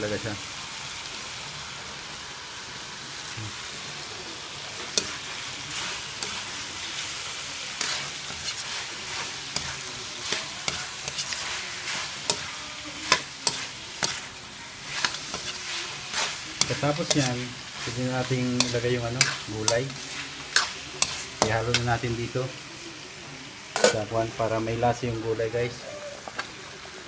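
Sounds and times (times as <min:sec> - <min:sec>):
chicken sizzling in a wok: 0:00.0 - 0:27.0
metal ladle scraping a pan: 0:04.8 - 0:22.0.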